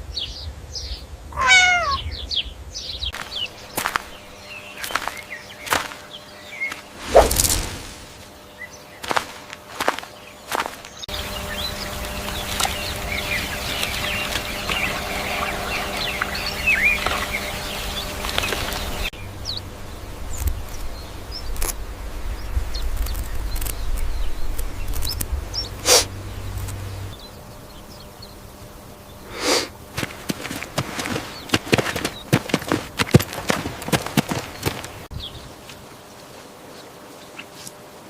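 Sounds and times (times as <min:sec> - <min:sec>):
small birds chirping: 0:00.0 - 0:37.9
steady low hum: 0:00.0 - 0:38.0
low rumbling: 0:11.1 - 0:29.2
scattered clicks: 0:23.0 - 0:25.4.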